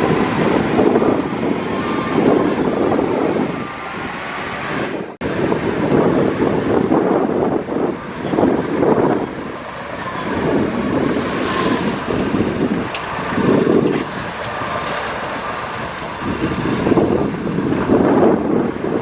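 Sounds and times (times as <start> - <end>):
heavy machinery diesel engine: 0.0 - 19.0
wind buffeting microphone: 0.0 - 19.0.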